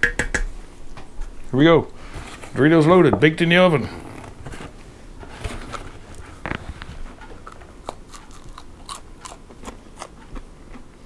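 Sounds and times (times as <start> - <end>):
person crunching a crispy snack: 7.4 - 10.8.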